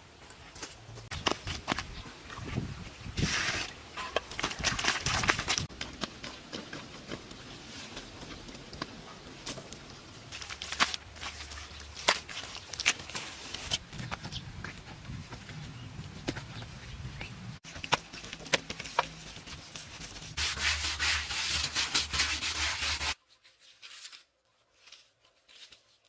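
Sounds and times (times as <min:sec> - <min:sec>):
scraping or rustling: 0:17.6 - 0:26.0.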